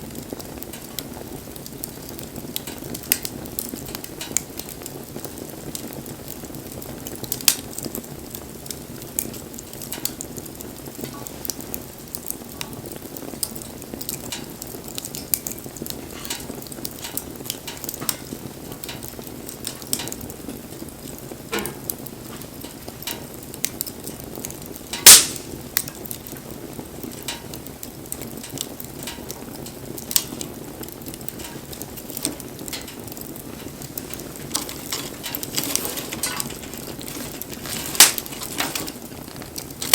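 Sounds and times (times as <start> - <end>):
loud fire snap: 0.0 - 39.9
wood fire crackling: 0.0 - 39.9.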